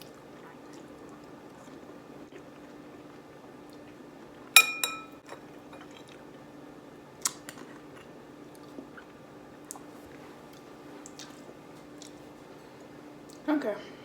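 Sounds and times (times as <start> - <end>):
spoon clinking against a bowl: 4.6 - 5.4
faint chewing: 7.2 - 13.5.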